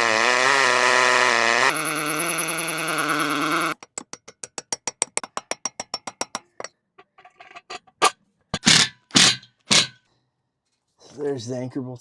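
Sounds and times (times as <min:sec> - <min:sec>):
power drill running: 0:00.0 - 0:03.8.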